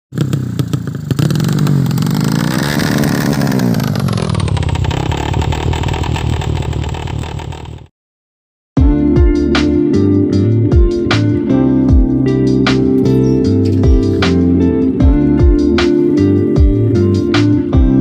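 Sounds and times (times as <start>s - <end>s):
motorcycle engine revving: 0.1s - 7.9s, 12.8s - 17.5s.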